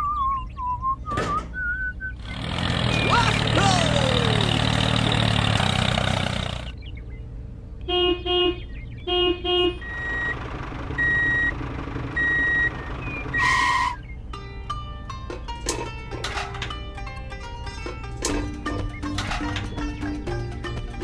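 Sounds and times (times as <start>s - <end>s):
truck engine running: 0.0s - 7.7s, 8.6s - 21.0s
truck horn toots: 7.8s - 10.4s, 12.2s - 14.1s
reversing alarm beeping: 9.8s - 10.4s, 11.0s - 14.0s
plucked-string music: 14.0s - 21.0s.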